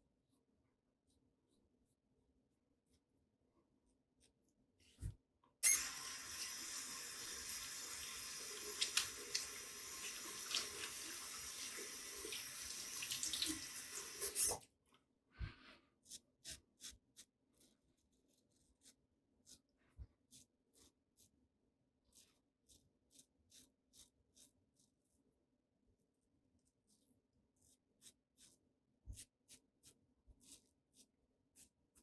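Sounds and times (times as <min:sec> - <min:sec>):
tap running into sink: 0:08.6 - 0:14.6.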